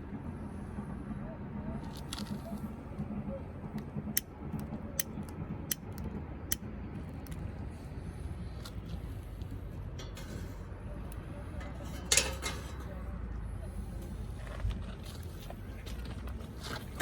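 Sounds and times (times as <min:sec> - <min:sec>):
steady low rumble: 0:00.0 - 0:17.0
sharp clicks: 0:03.8 - 0:07.4.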